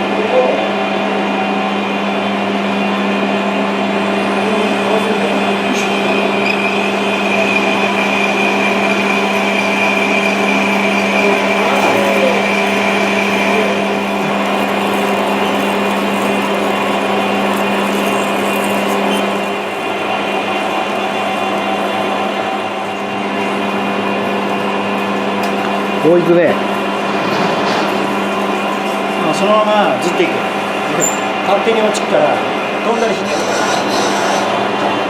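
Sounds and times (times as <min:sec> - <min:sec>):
metal lathe cutting: 0:03.0 - 0:35.0
high whine: 0:04.0 - 0:27.1.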